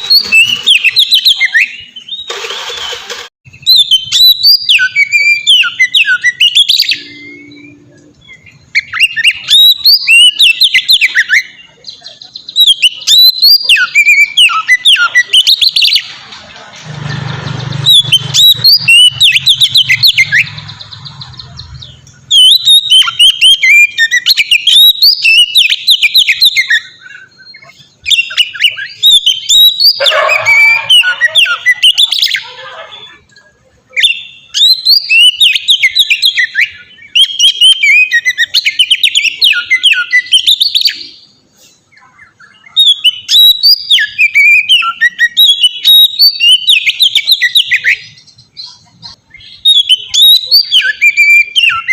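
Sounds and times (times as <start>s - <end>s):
bird singing whistled notes: 0.0s - 2.4s, 3.5s - 16.1s, 17.6s - 33.2s, 33.9s - 41.4s, 42.0s - 51.9s.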